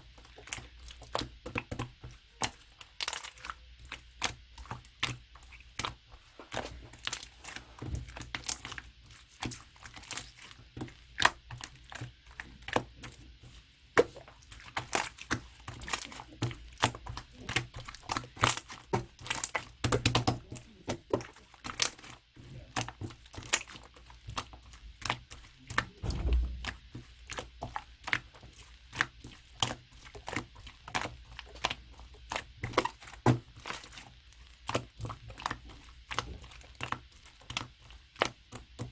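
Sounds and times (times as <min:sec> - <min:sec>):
dull thumps: 0:25.8 - 0:27.2.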